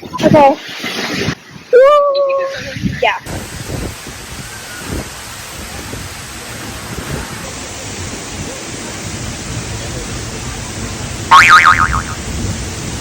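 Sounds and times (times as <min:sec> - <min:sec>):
waterfall roaring: 0:02.6 - 0:13.0
loud warbling high-pitched sound: 0:11.3 - 0:12.3.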